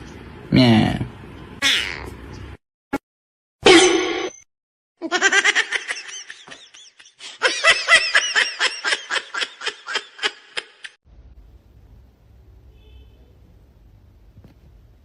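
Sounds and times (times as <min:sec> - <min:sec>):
person laughing: 0:05.0 - 0:11.0.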